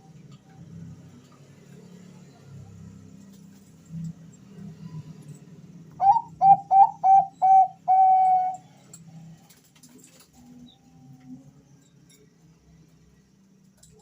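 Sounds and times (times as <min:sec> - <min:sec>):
dove cooing: 0:06.0 - 0:08.7.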